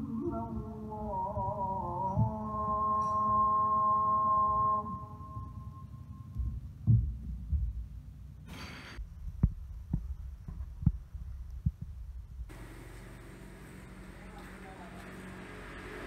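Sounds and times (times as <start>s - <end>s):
low thumps and knocks: 6.3s - 8.2s, 9.0s - 12.7s.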